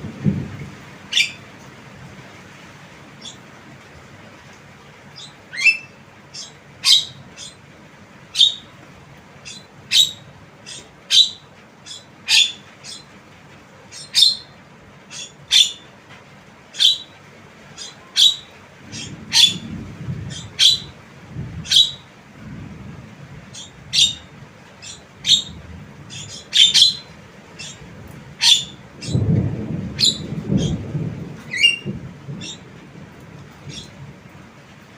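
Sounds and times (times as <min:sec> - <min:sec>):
bird giving sharp chirps: 0:09.4 - 0:13.1, 0:13.9 - 0:14.5, 0:24.8 - 0:27.8
low rumble: 0:18.8 - 0:34.5.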